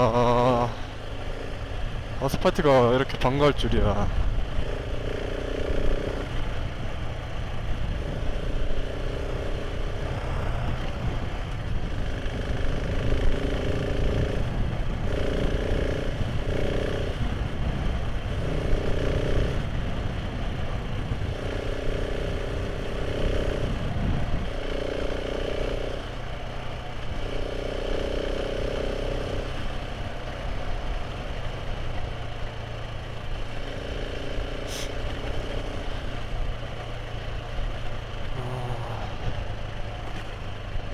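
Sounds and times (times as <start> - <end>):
motorcycle engine running: 0.0 - 40.9
wind rumble on microphone: 9.8 - 24.7.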